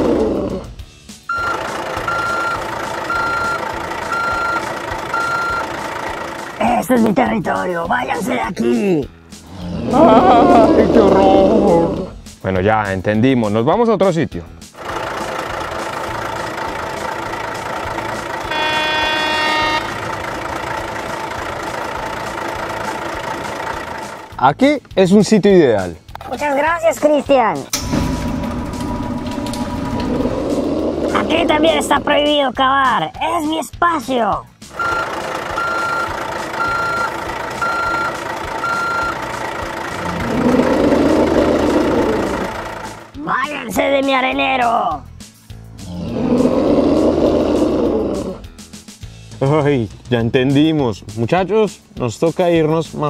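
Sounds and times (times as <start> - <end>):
truck engine running: 0.0 - 8.0, 14.6 - 24.6, 27.7 - 32.6, 34.5 - 43.2
reversing alarm beeps: 1.3 - 5.7, 18.5 - 20.0, 34.8 - 39.2
horn honking: 1.3 - 6.6, 17.3 - 24.2
rough low noise: 27.8 - 32.4, 39.8 - 42.8.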